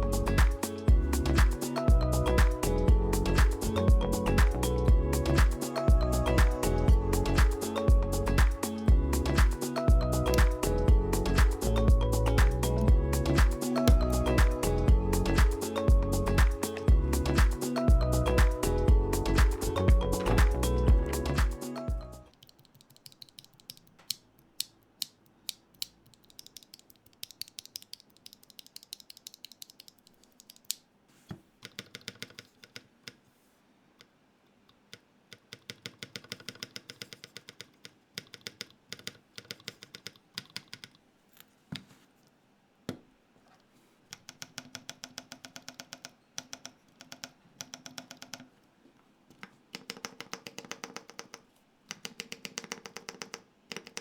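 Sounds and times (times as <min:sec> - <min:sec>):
mechanical keyboard keys clacking: 0:22.3 - 0:30.8, 0:35.3 - 0:41.0.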